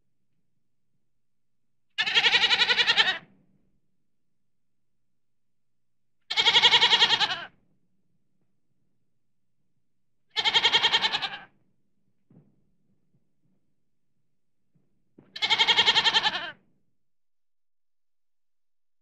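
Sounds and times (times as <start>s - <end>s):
ram bleating: 2.0s - 3.2s, 6.3s - 7.5s, 10.4s - 11.5s, 15.4s - 16.6s.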